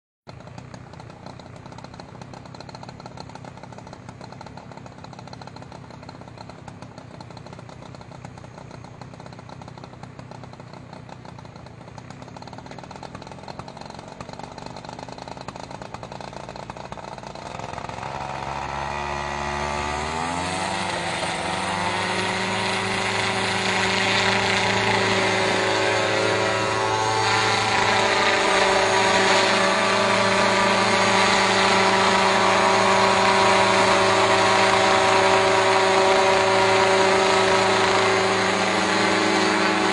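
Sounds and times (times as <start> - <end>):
low mechanical rumble: 0.3 - 39.9
drone propellers whining: 17.4 - 39.9.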